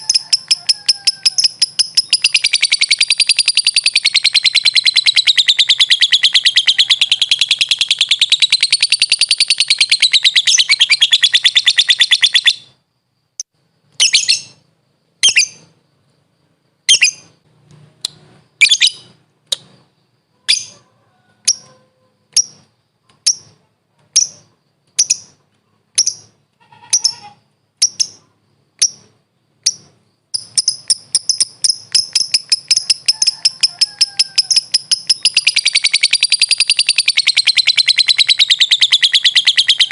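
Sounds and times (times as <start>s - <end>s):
lovebird chattering trill: 0.0s - 12.8s, 14.0s - 14.6s, 15.2s - 15.7s, 16.9s - 17.4s, 18.6s - 19.8s, 20.4s - 20.8s, 21.4s - 25.4s, 26.0s - 39.9s
sharp shrill bird calls: 0.0s - 12.8s, 14.0s - 14.6s, 15.2s - 15.7s, 16.9s - 17.4s, 18.6s - 19.2s, 26.0s - 39.9s.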